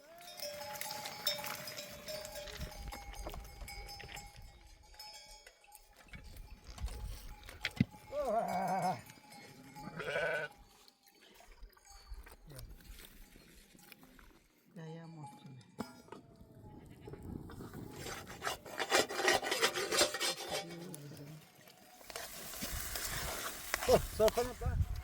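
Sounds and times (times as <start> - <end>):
sheep bells clinking: 0.0 - 22.0
sheep bleating: 8.1 - 9.1, 9.8 - 10.6.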